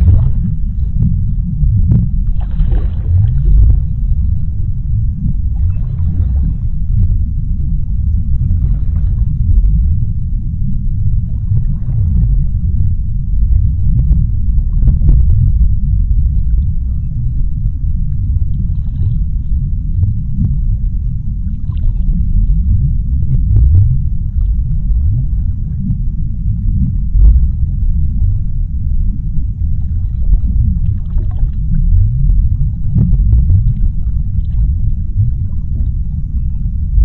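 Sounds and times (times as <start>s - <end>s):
deep underwater rumble: 0.0s - 37.0s
faint underwater swishes: 0.0s - 37.0s.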